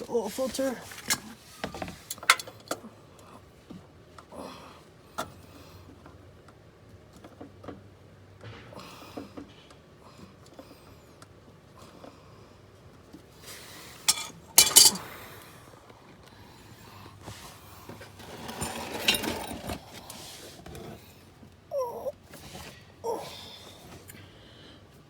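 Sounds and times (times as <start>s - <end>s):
scraping and handling noise: 0.0s - 2.8s, 13.4s - 15.2s, 17.1s - 21.5s
metal tools clinking: 14.1s - 15.2s, 18.4s - 19.8s.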